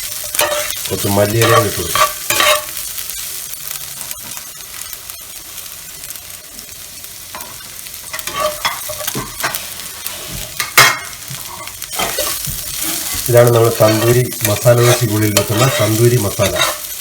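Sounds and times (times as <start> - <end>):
spatula scraping a pan: 0.0 - 2.8, 7.4 - 17.0
food sizzling in a frying pan: 0.0 - 17.0.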